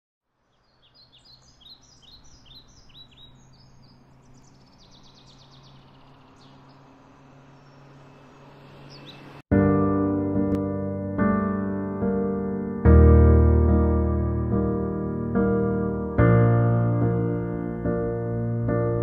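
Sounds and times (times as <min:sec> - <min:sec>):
faint outdoor ambience: 0:00.2 - 0:09.5
birds chirping: 0:00.4 - 0:09.4
low steady hum: 0:03.2 - 0:09.4.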